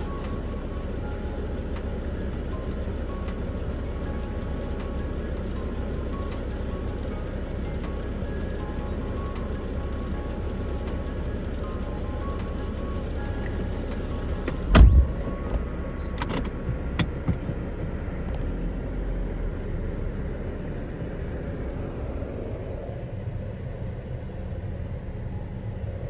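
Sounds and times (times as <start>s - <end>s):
car driving on dirt road: 0.0s - 26.0s
loud thump: 14.5s - 15.6s.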